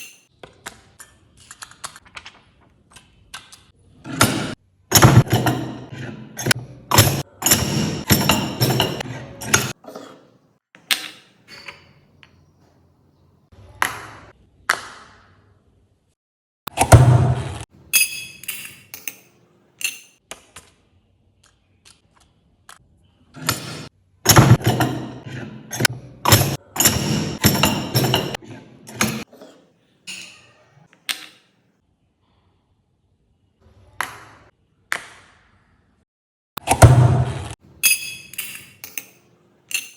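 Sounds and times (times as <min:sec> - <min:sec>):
hard parts knocking and clattering: 0:04.1 - 0:09.8, 0:23.4 - 0:29.3
metal parts clacking: 0:18.0 - 0:20.2, 0:24.3 - 0:29.3, 0:37.8 - 0:39.9.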